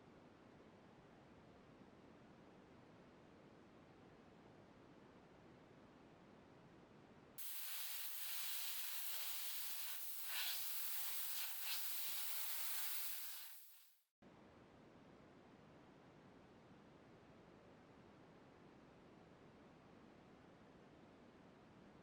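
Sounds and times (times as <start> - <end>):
spraying hiss: 7.4 - 14.0.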